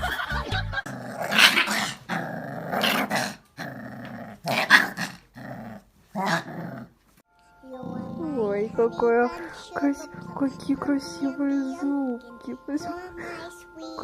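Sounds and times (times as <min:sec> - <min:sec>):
dog growling: 0:00.8 - 0:07.0, 0:07.7 - 0:11.0.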